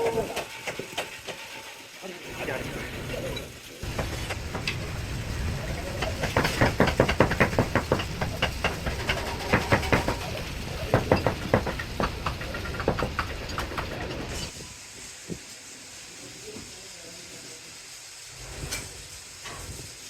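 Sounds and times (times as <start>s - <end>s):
machine noise: 0.0s - 17.1s.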